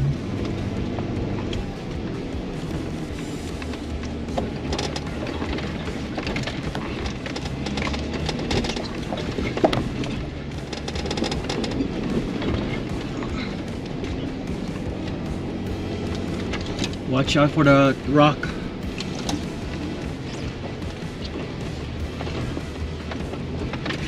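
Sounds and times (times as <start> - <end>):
engine running low: 0.0 - 24.0
music: 0.0 - 24.0
rocks crunching under tyres: 0.0 - 24.0.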